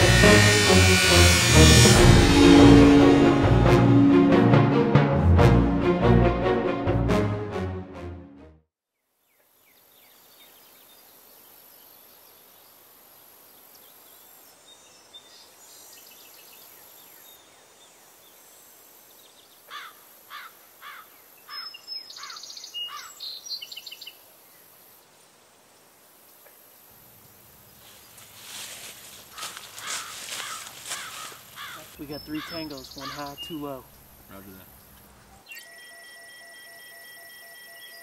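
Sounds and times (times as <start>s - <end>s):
music: 0.0s - 8.7s
bird calling falling notes: 29.3s - 33.8s
bird twittering: 29.3s - 33.9s.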